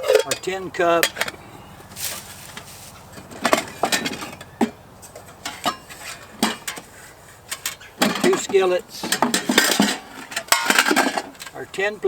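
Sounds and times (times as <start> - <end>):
metal cookware clinking: 0.0 - 11.6.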